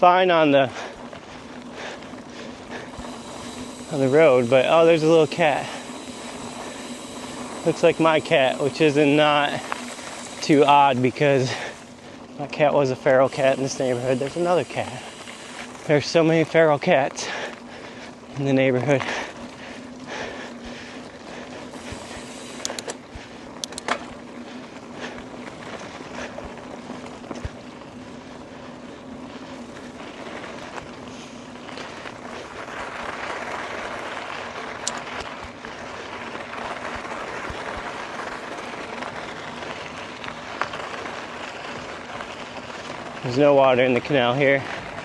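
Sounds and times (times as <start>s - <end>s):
bike tyres rolling: 0.0s - 45.0s
sharp clicks and rattles: 2.3s - 24.2s, 34.4s - 35.6s.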